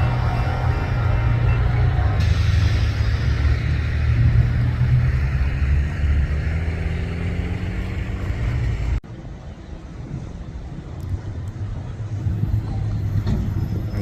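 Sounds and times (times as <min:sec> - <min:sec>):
loud deep rumble: 0:00.0 - 0:09.0.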